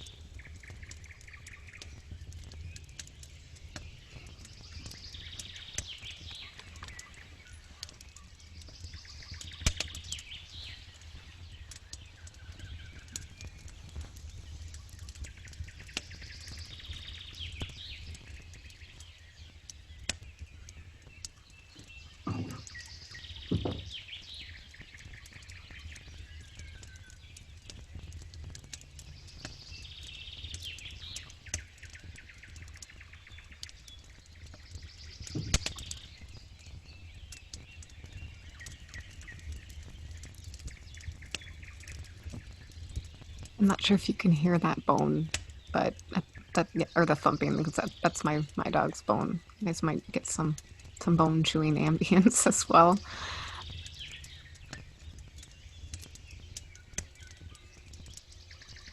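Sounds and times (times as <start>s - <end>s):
birds chirping: 0.0s - 58.9s
campfire crackling: 0.0s - 58.9s
loud knocks: 23.5s - 23.9s.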